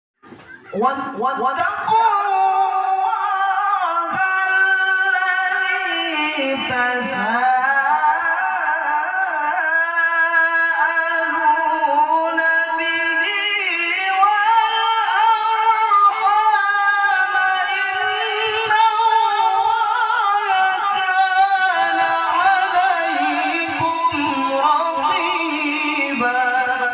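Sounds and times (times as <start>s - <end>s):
man chanting: 0.8s - 26.9s.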